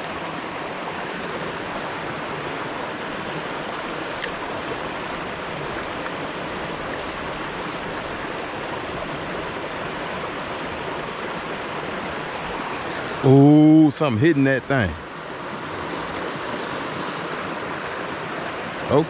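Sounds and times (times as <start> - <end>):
creek water rushing: 0.0 - 19.0.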